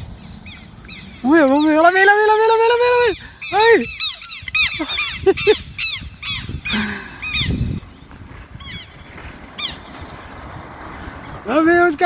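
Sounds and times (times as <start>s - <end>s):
birds alarm calls: 0.0s - 11.5s.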